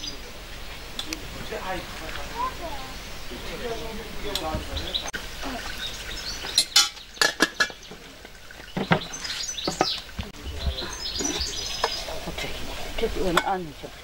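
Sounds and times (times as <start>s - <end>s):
birds chirping: 0.0s - 14.0s
kitchenware clinking and knocking: 6.6s - 8.0s.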